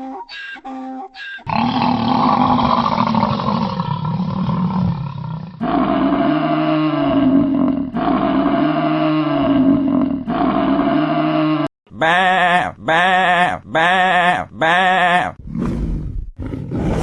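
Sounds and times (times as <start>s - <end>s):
lion roaring: 1.5s - 11.7s, 15.4s - 17.0s.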